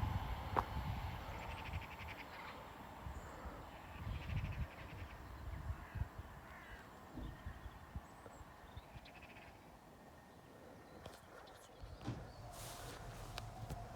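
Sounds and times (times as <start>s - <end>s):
wind rumble on microphone: 0.0s - 2.2s, 3.0s - 6.5s, 11.8s - 13.9s.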